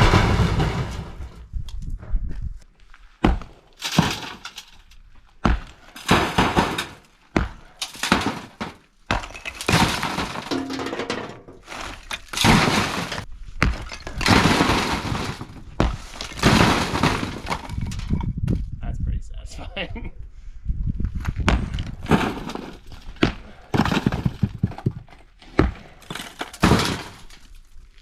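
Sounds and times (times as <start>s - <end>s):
heavy hits on block wall: 0.0s - 1.4s, 3.2s - 4.4s, 5.4s - 18.0s, 21.4s - 27.4s
rubble clattering down: 0.0s - 1.5s, 3.8s - 5.0s, 7.8s - 18.3s, 21.4s - 28.0s.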